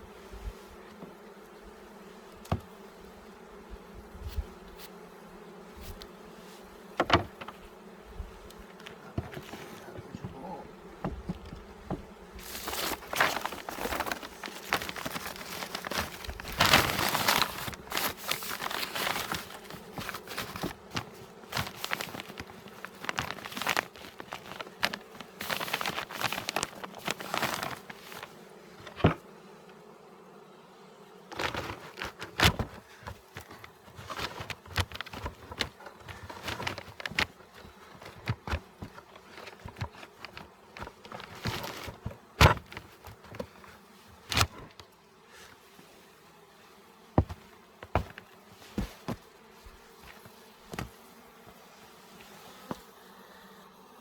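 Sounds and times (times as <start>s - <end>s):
bees buzzing: 0.0s - 54.0s
sharp knocks on hive: 2.4s - 2.7s, 7.0s - 7.7s, 8.7s - 15.4s, 47.2s - 49.2s
rustling and crinkling: 5.6s - 29.2s, 31.2s - 46.2s, 47.1s - 52.9s.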